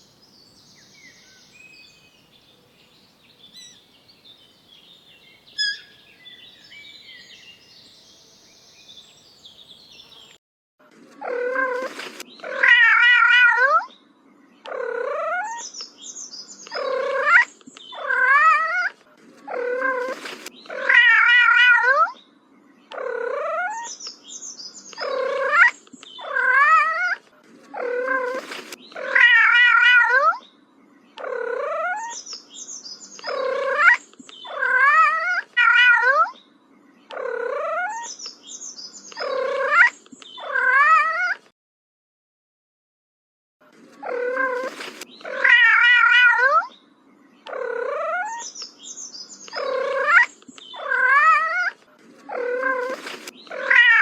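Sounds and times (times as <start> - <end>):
cat meowing and yowling: 12.5 - 13.9, 20.8 - 22.2, 29.1 - 30.4, 33.7 - 36.4, 39.6 - 41.4, 45.3 - 46.7, 49.7 - 54.0.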